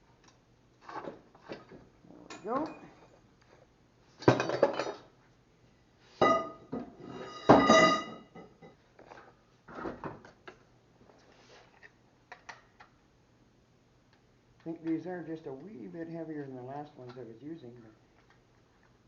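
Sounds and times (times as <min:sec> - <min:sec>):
metal tools clanking: 0:06.2 - 0:08.6.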